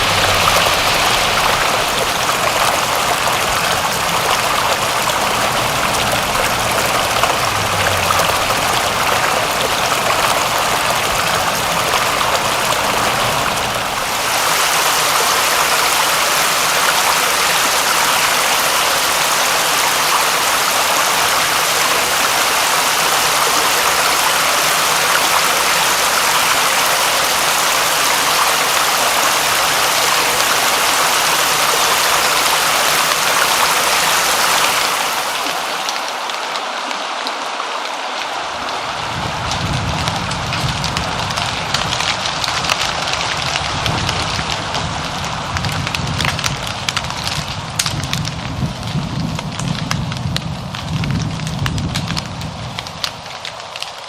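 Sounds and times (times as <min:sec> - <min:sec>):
low rumble: 0:00.0 - 0:14.2
heavy rain falling: 0:00.0 - 0:54.0.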